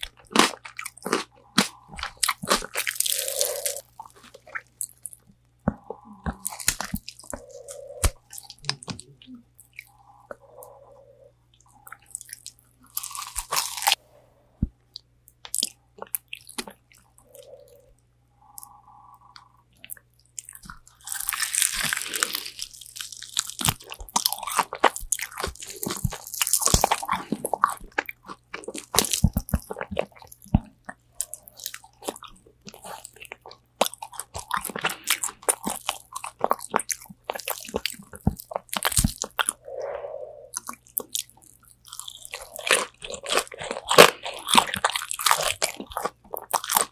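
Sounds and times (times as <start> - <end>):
crunching fried chicken: 0.0 - 5.2, 11.9 - 14.0, 19.9 - 39.6, 40.6 - 46.9
wet mouth sounds: 0.0 - 14.0, 23.6 - 46.9.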